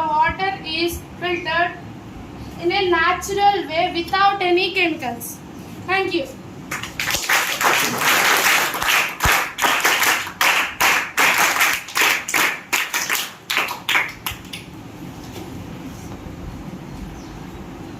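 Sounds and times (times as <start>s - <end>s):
small group clapping: 6.7s - 14.8s.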